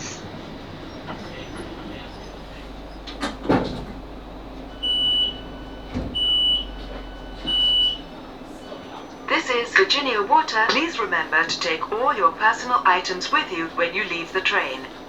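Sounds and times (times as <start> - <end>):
train door equipment clunks: 0.0 - 9.6
high door warning beeps: 0.2 - 8.6.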